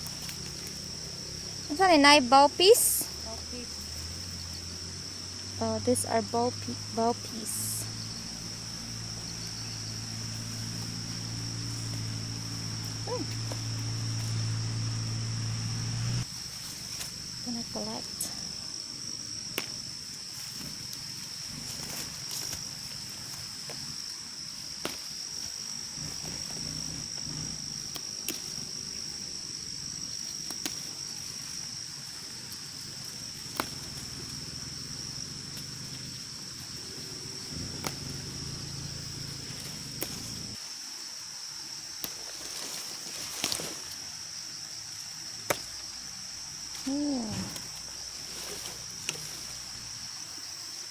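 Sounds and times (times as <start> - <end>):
insects droning: 0.0 - 50.9.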